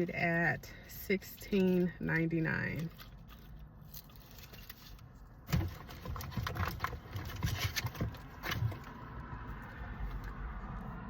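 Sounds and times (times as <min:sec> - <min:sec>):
hands rummaging through a box: 0:00.8 - 0:09.2.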